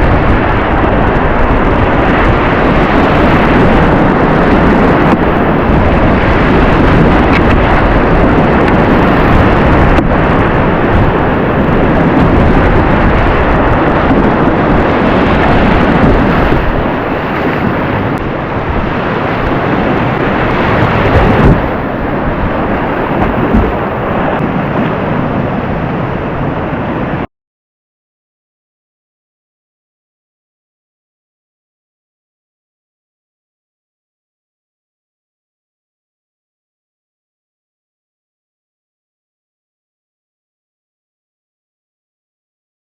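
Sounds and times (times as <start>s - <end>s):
whitewater rushing: 0.0s - 27.3s
wind buffeting on microphone: 0.0s - 27.3s.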